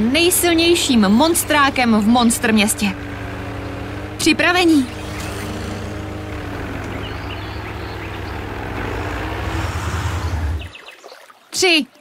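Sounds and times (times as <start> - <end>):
monster truck engines rumbling: 0.0 - 10.8.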